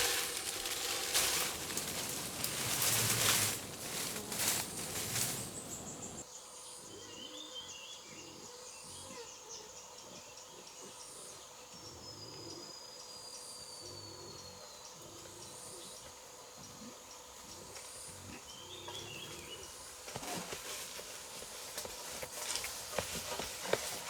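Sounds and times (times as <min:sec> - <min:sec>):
insect drone: 0:00.0 - 0:07.2.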